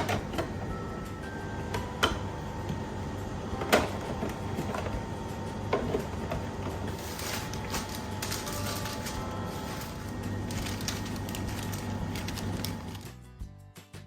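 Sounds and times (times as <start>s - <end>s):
rustle of groceries: 6.8s - 13.2s.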